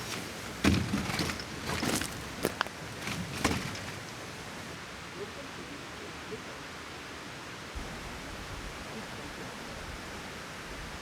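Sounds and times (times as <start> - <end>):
low bumps: 0.0 - 4.7.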